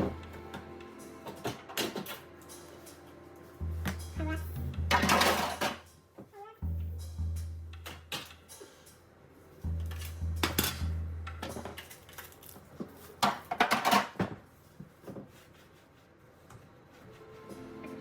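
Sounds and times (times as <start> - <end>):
background music bass note: 0.0 - 1.8, 2.5 - 5.9, 6.6 - 8.4, 9.6 - 11.8.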